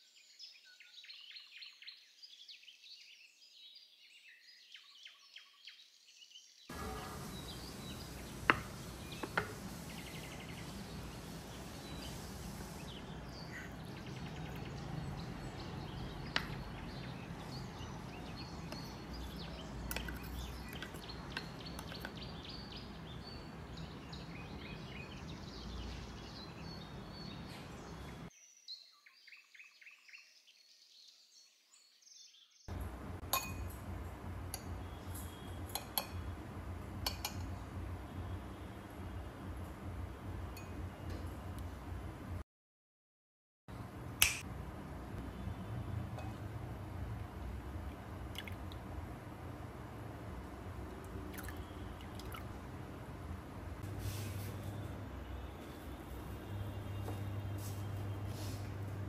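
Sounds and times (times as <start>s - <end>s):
steady background hiss: 6.7s - 16.0s
birds chirping: 6.7s - 30.8s, 34.5s - 36.6s, 37.2s - 41.4s, 50.1s - 59.0s.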